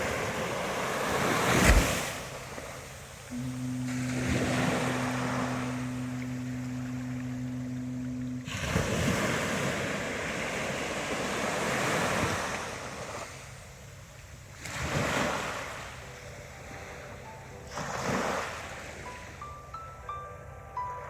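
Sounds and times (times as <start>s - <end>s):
ocean waves breaking: 0.0s - 19.4s
steady low hum: 2.2s - 14.8s.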